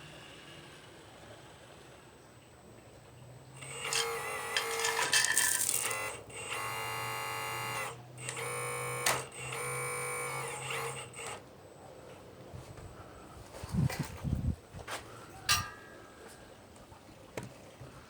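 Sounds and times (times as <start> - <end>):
small electric motor whining: 3.6 - 11.4.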